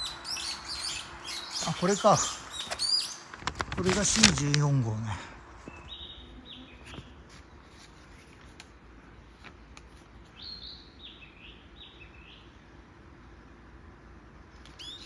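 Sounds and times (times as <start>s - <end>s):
songbird calling: 0.0s - 3.4s, 5.6s - 7.7s, 10.2s - 12.8s, 14.6s - 15.0s.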